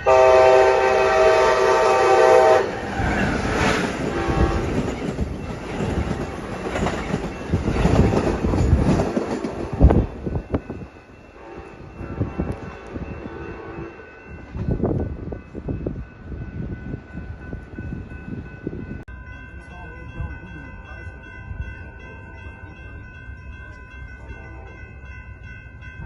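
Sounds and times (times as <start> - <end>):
train horn blowing: 0.0 - 3.4, 4.0 - 4.8, 11.3 - 14.4
train wheels clattering on rails: 2.7 - 13.2.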